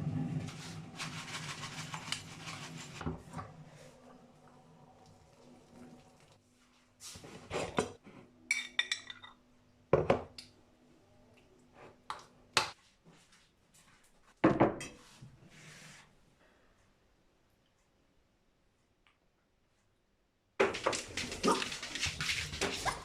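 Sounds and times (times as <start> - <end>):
objects knocking and clattering: 20.6 - 23.0.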